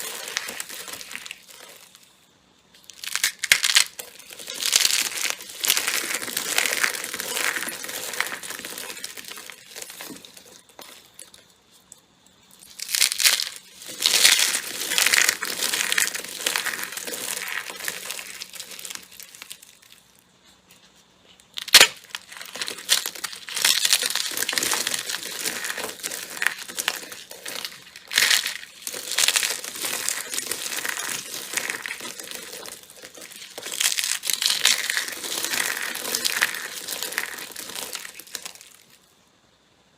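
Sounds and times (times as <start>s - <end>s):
slime squished by hand: 21.5s - 39.0s.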